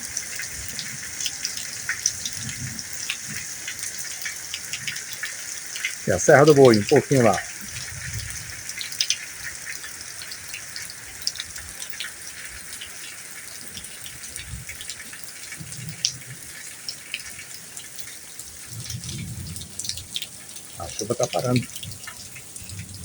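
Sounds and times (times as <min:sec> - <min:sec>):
light rain hiss: 0:00.0 - 0:23.0
water drips: 0:00.0 - 0:23.0
soft low rumbles: 0:22.6 - 0:23.0.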